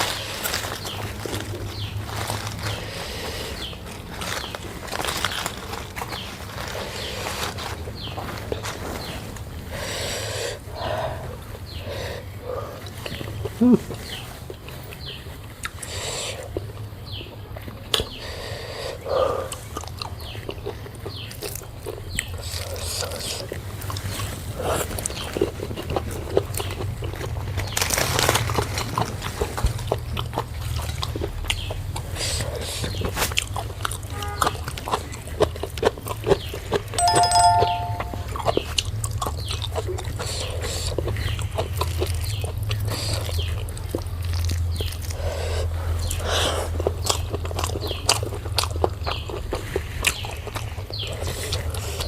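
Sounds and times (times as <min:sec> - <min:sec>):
person chewing and smacking food: 0:38.8 - 0:45.2, 0:46.0 - 0:51.8.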